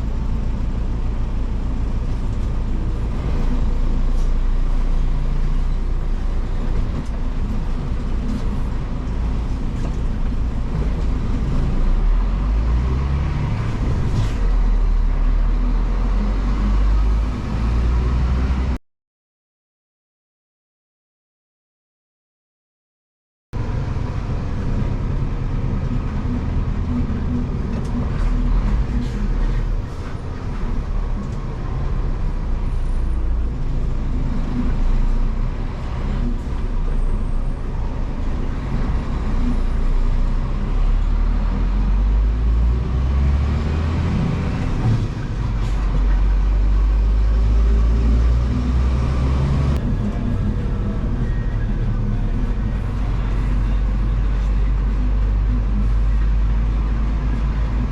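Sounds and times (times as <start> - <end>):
truck diesel engine running: 23.6 - 34.6, 43.7 - 57.9.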